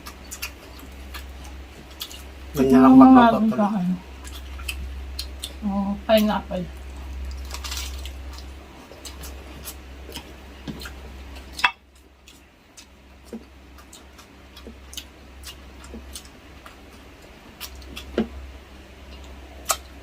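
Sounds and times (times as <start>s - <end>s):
steady low hum: 0.0s - 20.0s
chewing mouth smacks: 19.0s - 19.9s.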